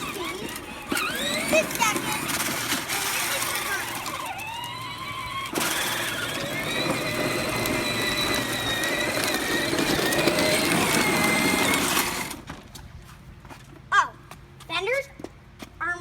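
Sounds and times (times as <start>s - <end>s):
toy tractor electric motor whine: 0.0s - 12.5s.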